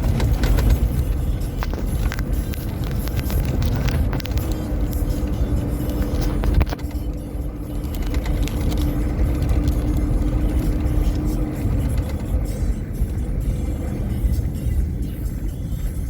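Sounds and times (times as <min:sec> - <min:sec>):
knocks and rattles: 0:00.0 - 0:05.2
heavy low rumble: 0:00.0 - 0:16.0
vehicle engine hum: 0:00.0 - 0:16.0.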